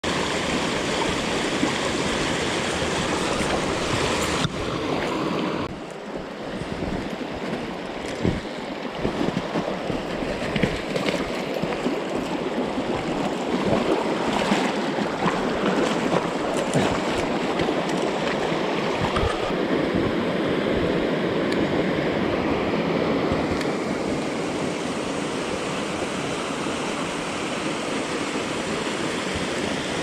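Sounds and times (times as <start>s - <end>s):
stream rushing over rocks: 0.0s - 21.8s.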